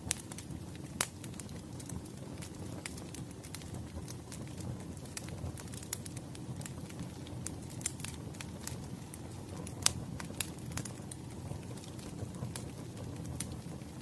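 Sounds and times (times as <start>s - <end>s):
firewood crackling and popping: 0.0s - 14.0s
low rumble of flames: 0.0s - 14.0s.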